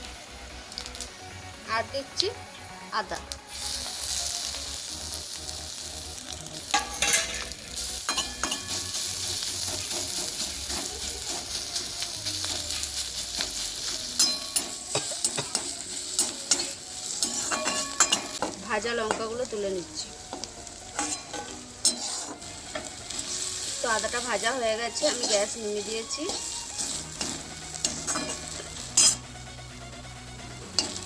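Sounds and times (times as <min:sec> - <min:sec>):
spices sizzling in hot oil: 0:00.0 - 0:31.0
spatula scraping a pan: 0:08.1 - 0:11.7, 0:13.6 - 0:18.5, 0:20.4 - 0:23.8, 0:24.9 - 0:29.3.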